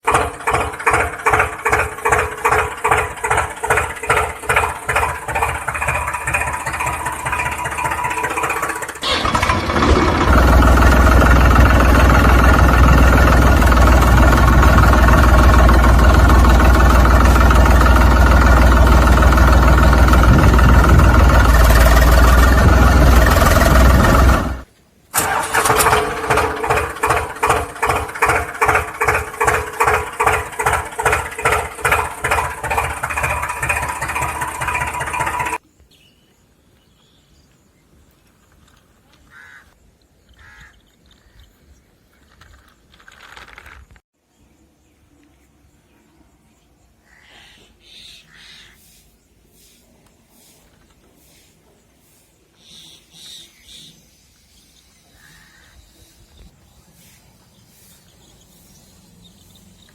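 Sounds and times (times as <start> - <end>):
engine chugging: 0.0 - 35.6.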